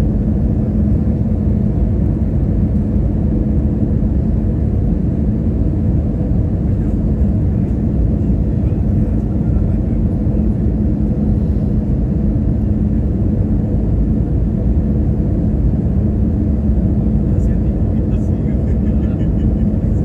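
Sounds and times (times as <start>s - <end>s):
airliner engine rumble in cabin: 0.0s - 20.0s.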